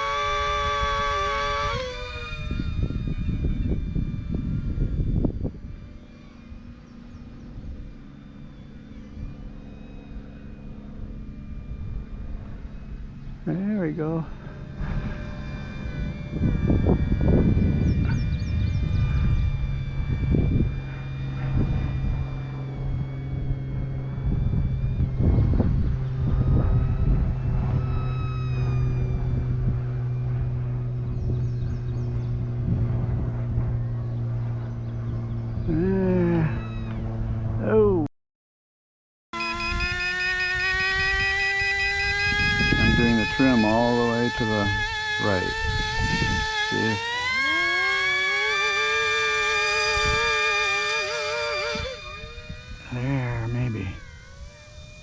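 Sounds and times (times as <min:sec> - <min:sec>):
wind buffeting microphone: 0:00.0 - 0:09.6, 0:11.0 - 0:37.6, 0:39.5 - 0:55.0
rc plane motor droning: 0:00.0 - 0:37.6, 0:39.4 - 0:55.0
low rumble: 0:00.0 - 0:38.1.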